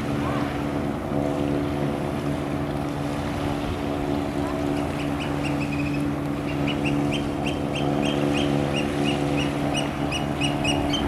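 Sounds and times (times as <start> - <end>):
distant engine hum: 0.0 - 11.0
bird calling short high notes: 5.0 - 11.0.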